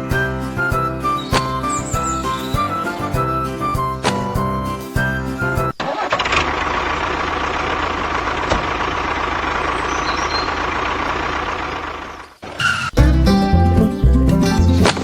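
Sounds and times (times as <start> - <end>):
music: 0.0 - 5.8, 13.0 - 15.0
truck engine running: 0.0 - 12.4.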